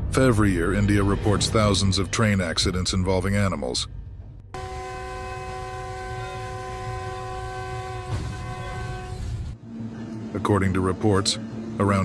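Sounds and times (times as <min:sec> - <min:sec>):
train rumble: 0:04.2 - 0:12.0
train horn chord: 0:04.6 - 0:09.6.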